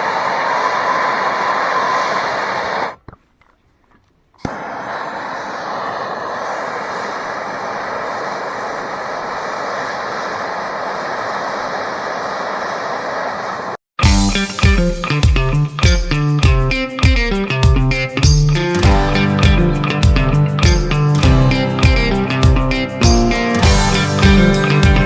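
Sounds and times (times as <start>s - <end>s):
guitar music: 14.0s - 25.0s
loud machine running: 21.2s - 25.0s.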